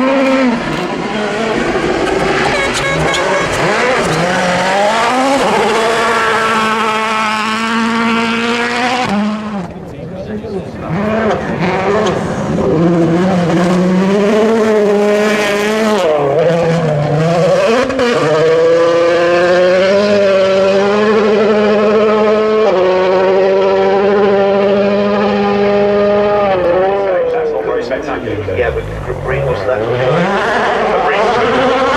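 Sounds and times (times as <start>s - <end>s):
rally car engine revving: 0.0s - 31.9s.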